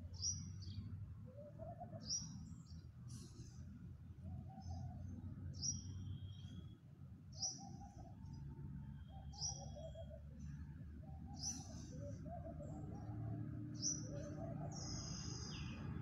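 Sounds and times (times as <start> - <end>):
low bird warbling: 7.4 - 16.0.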